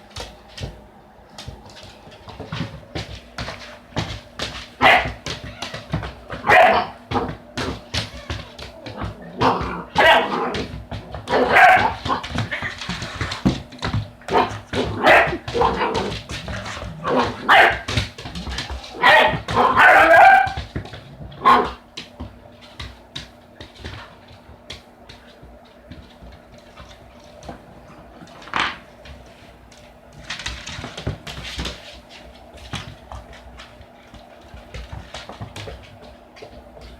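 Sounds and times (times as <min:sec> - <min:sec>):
puppy barking and yipping: 0:06.4 - 0:07.0, 0:09.4 - 0:10.5, 0:11.3 - 0:12.2, 0:17.4 - 0:17.9, 0:19.0 - 0:20.6.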